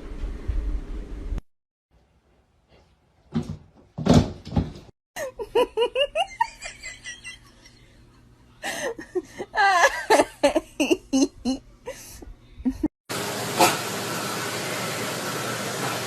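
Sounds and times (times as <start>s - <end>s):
person laughing: 5.2s - 12.9s.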